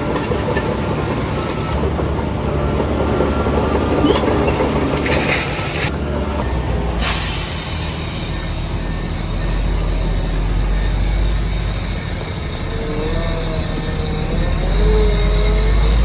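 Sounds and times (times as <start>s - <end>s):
diesel machinery droning: 0.0s - 16.0s.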